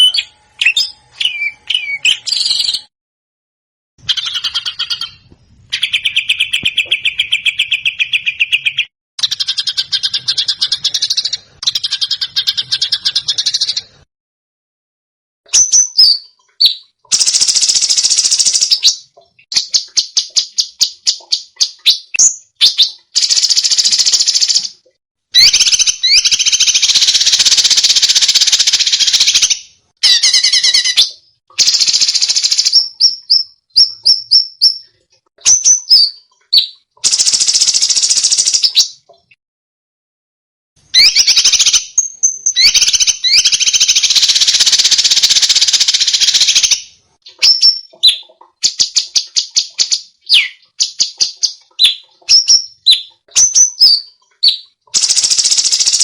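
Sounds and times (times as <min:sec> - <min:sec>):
rapid repeated bird notes: 0:15.6 - 0:24.8, 0:25.4 - 0:39.4, 0:41.0 - 0:56.0
songbird harsh song phrases: 0:50.3 - 0:51.0.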